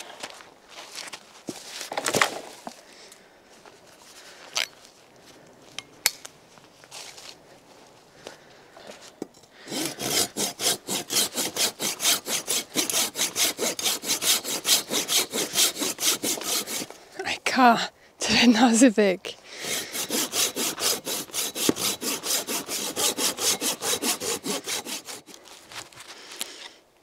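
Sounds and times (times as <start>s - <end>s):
hand saw cutting wood: 9.6s - 17.0s, 19.6s - 25.4s.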